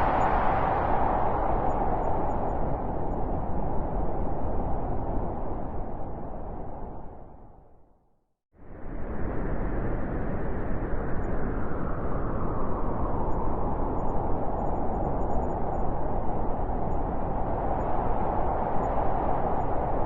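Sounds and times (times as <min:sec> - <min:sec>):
high wind hiss: 0:00.0 - 0:02.8
blizzard wind rushing: 0:00.0 - 0:07.6, 0:08.6 - 0:20.0.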